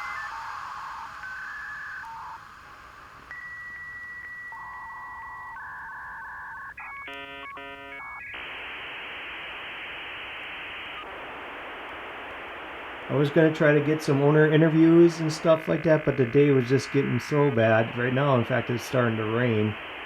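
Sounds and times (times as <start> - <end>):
pulsing telephone tones: 0.0 - 20.0
telephone line beeps: 0.0 - 20.0
steady hiss: 8.3 - 20.0.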